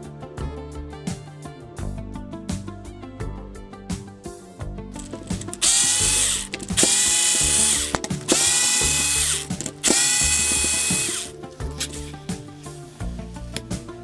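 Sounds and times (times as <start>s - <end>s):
cordless drill motor spinning up: 5.0s - 13.7s.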